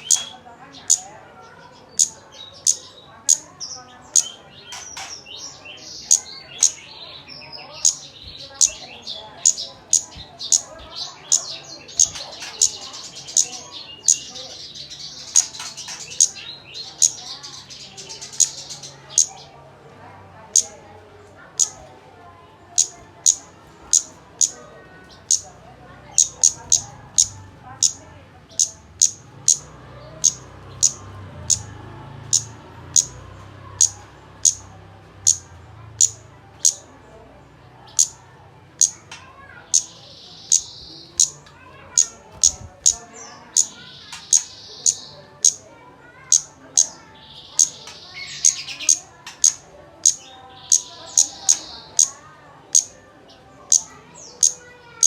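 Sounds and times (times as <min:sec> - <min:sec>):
sharp high bird chirps: 0:00.0 - 0:01.1, 0:01.7 - 0:19.5, 0:21.5 - 0:21.8, 0:22.8 - 0:25.5, 0:26.1 - 0:33.2, 0:33.8 - 0:36.9, 0:38.8 - 0:45.6, 0:46.2 - 0:53.0
bird twittering chatter: 0:00.0 - 0:19.6, 0:20.4 - 0:37.0, 0:37.8 - 0:38.2, 0:38.8 - 0:55.0.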